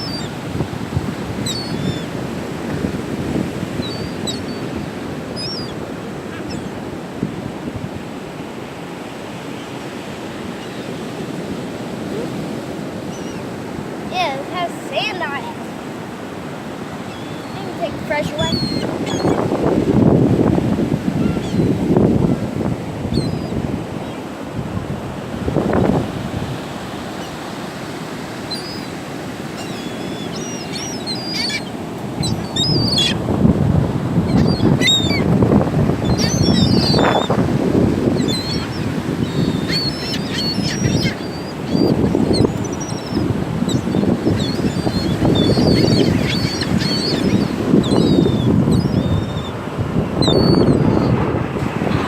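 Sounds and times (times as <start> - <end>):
seagulls calling: 0.0 - 0.4, 1.4 - 2.2, 3.7 - 7.1, 9.5 - 19.7, 21.1 - 21.8, 23.1 - 24.4, 26.8 - 49.6, 50.2 - 51.2
ocean surf breaking: 0.0 - 52.0
wind on microphone: 0.0 - 52.0.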